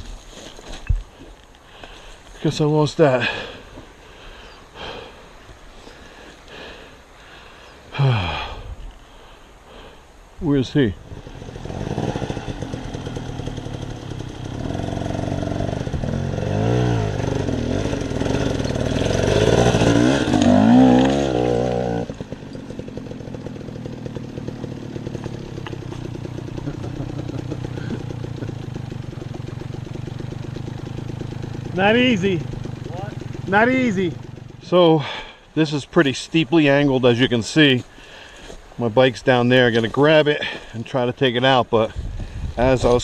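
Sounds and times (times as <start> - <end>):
dirt bike engine revving: 11.0 - 35.3.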